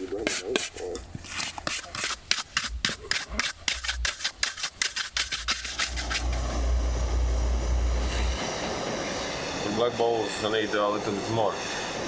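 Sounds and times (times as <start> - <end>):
hand rubbing on wood: 0.0 - 6.5
steady rumbling noise: 5.2 - 12.0.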